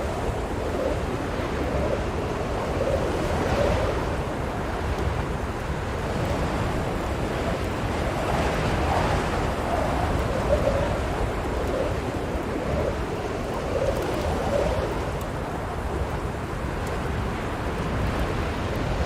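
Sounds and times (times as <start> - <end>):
blizzard wind gusting: 0.0 - 19.0.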